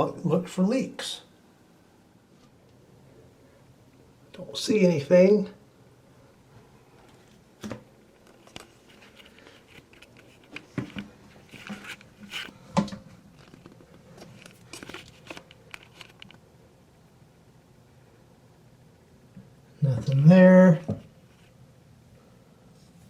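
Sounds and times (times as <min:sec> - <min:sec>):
rustling: 0:06.5 - 0:16.4.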